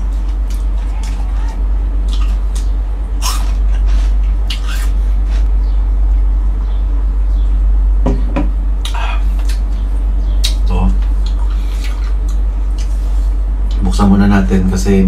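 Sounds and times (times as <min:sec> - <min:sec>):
steady low hum: 0:00.0 - 0:15.0
wet chewing and lip smacks: 0:10.4 - 0:13.0.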